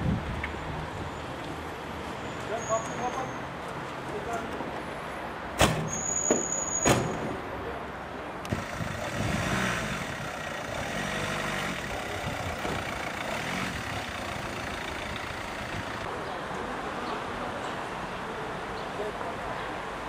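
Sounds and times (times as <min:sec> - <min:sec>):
traffic noise: 0:00.0 - 0:20.0
vehicle engine running: 0:08.5 - 0:16.1.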